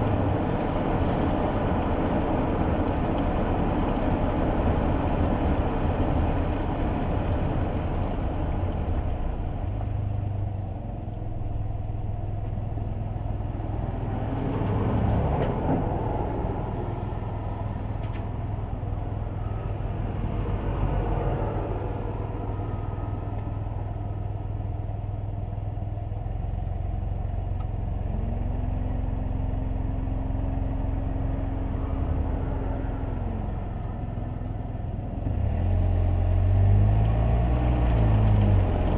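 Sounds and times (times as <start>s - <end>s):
car engine and tyre rumble: 0.0s - 38.9s
vehicle passing by: 13.7s - 24.8s.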